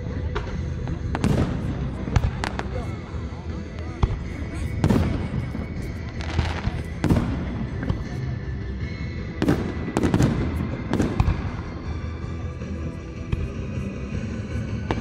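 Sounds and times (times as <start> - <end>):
background music: 0.0 - 15.0
fireworks crackling: 0.0 - 15.0
fireworks bangs: 0.2 - 8.3, 9.4 - 12.0.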